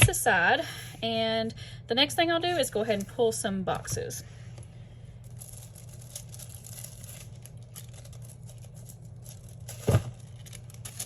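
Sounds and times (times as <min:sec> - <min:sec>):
paper rustling and crinkling: 0:04.5 - 0:11.0.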